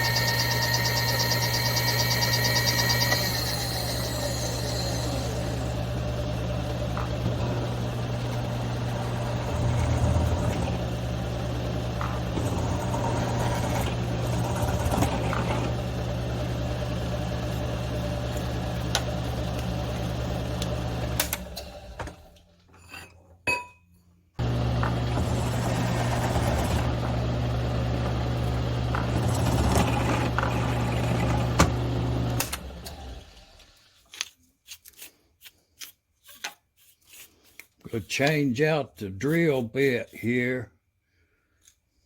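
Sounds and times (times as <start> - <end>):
milling machine motor humming: 0.0 - 22.1, 24.4 - 33.6.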